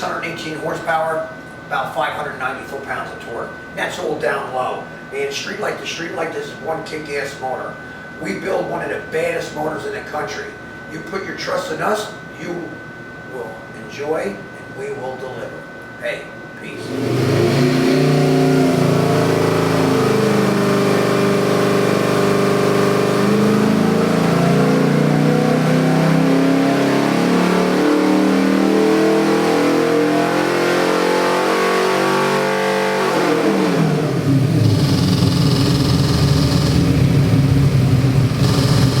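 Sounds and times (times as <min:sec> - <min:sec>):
engine running at high revs: 0:16.8 - 0:39.0.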